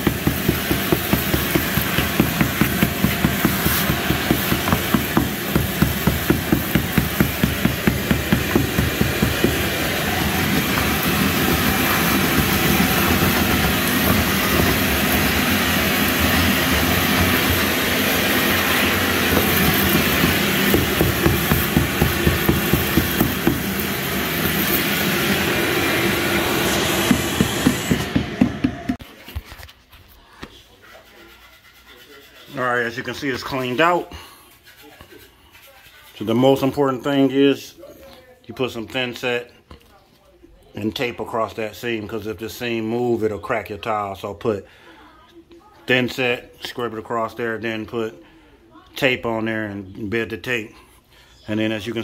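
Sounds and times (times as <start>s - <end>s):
power tool chipping tile bed: 0.0s - 29.0s.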